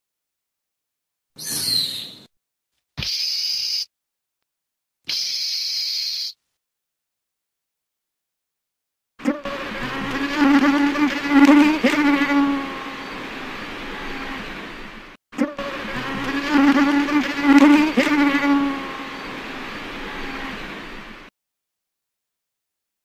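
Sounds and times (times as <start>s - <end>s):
flying insect buzzing: 9.2s - 13.3s, 15.4s - 19.4s.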